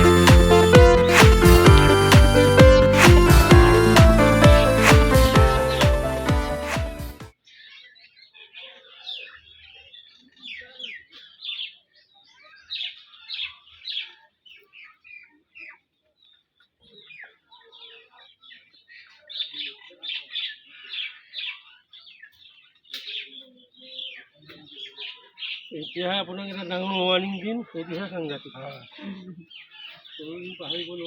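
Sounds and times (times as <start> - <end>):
birds chirping: 19.4 - 31.0.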